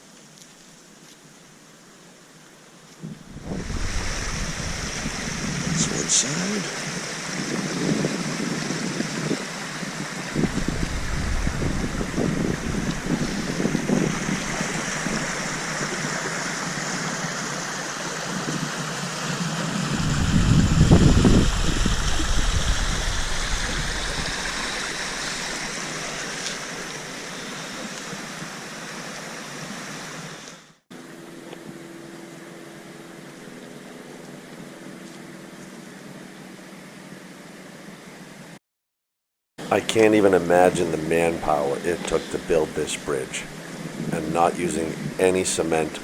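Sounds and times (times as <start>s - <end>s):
steady hiss: 0.0s - 8.2s, 9.3s - 30.6s, 39.6s - 46.0s
water rushing in a stream: 0.8s - 31.3s, 40.0s - 46.0s
wind buffeting microphone: 3.0s - 18.9s, 19.6s - 26.3s.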